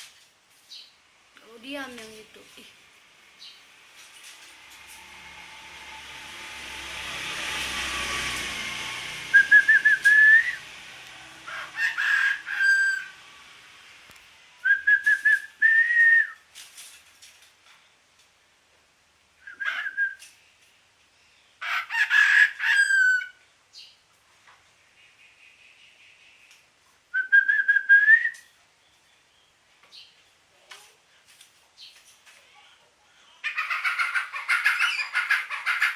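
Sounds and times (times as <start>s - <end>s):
broad rush of noise: 2.8s - 16.3s
bird imitating chicken crow: 11.4s - 13.2s, 21.6s - 23.4s.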